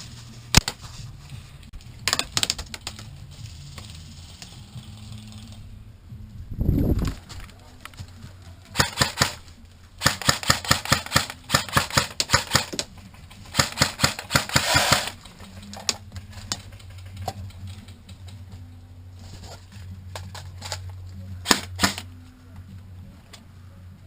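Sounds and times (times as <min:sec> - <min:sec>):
airsoft guns firing: 0:08.8 - 0:09.4, 0:10.0 - 0:12.8, 0:13.5 - 0:15.2, 0:21.4 - 0:22.1.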